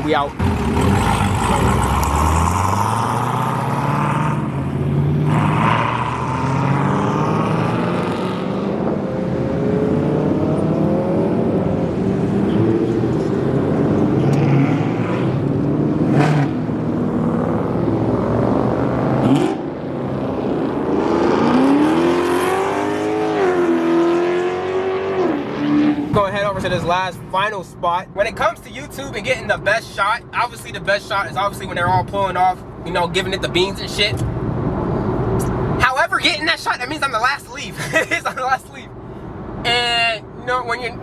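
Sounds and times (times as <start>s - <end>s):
car engines revving and accelerating: 0.1s - 27.4s.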